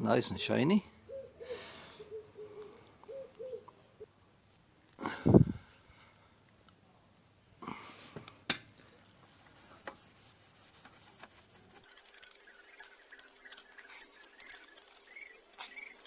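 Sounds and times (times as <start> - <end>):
faint rubbing with squeaks: 9.3 - 16.0.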